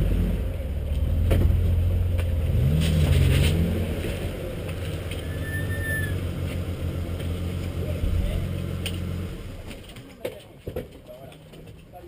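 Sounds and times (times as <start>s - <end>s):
car engine revving: 0.0s - 10.0s
faint high whistle: 5.2s - 6.2s.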